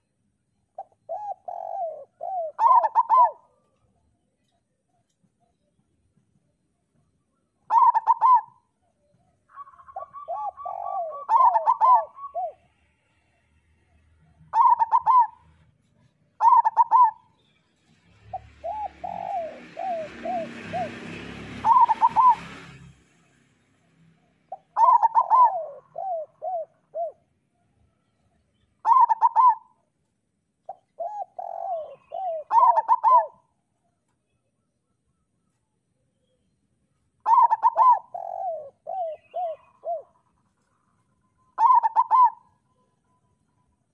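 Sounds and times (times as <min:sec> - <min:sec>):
doves cooing: 0:00.8 - 0:04.1, 0:07.6 - 0:12.8, 0:14.3 - 0:17.3, 0:18.2 - 0:22.6, 0:24.5 - 0:27.3, 0:28.8 - 0:29.8, 0:30.7 - 0:33.5, 0:37.2 - 0:40.8, 0:41.6 - 0:42.6.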